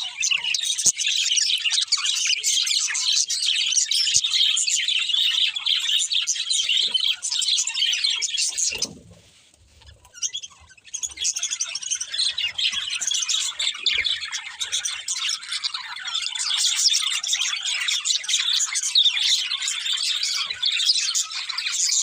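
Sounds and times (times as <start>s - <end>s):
budgerigars chirping: 0.0s - 9.0s, 9.7s - 22.0s.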